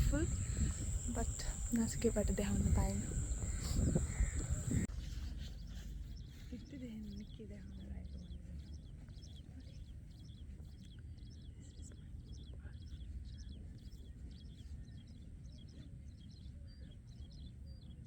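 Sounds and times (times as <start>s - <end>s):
low steady rumble: 0.0s - 10.5s
small birds chirping: 0.0s - 18.0s.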